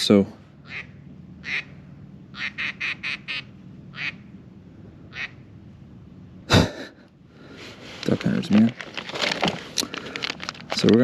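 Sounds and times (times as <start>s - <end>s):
duck quacking: 0.6s - 4.2s, 5.1s - 5.4s.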